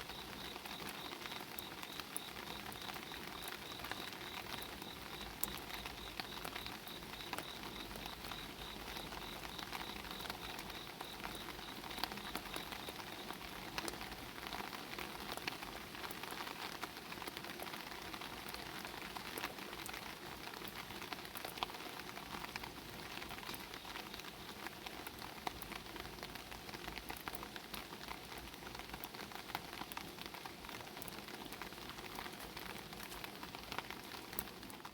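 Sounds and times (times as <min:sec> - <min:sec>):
insect trill: 0:00.0 - 0:13.4
rain pattering on umbrella: 0:00.0 - 0:34.9.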